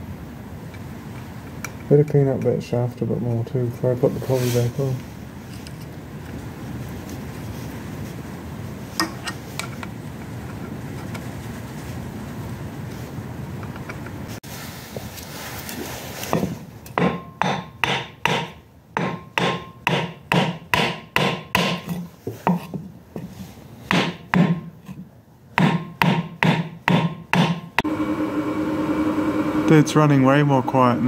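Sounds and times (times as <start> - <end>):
hammer knocking on metal: 17.0 - 21.9, 23.9 - 24.7, 25.6 - 27.7.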